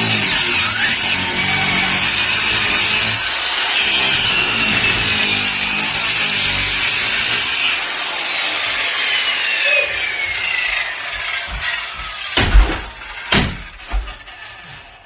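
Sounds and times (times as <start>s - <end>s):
power saw cutting wood: 0.0s - 15.0s
loud knock: 11.5s - 14.3s.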